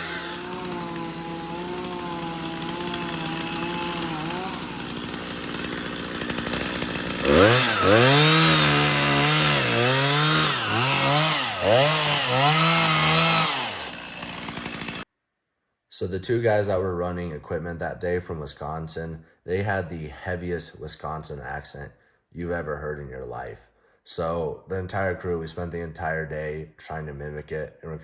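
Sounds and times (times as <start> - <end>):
chainsaw running and revving: 0.0 - 15.0.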